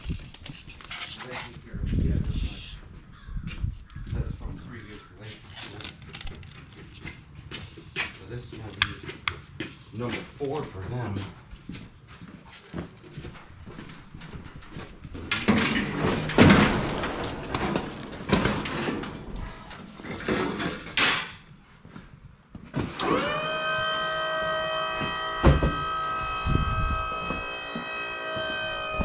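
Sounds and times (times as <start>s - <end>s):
equipment knocking and clattering: 13.2s - 21.5s
thuds: 13.8s - 21.4s, 22.6s - 29.0s
machine motor high whine: 22.8s - 29.0s.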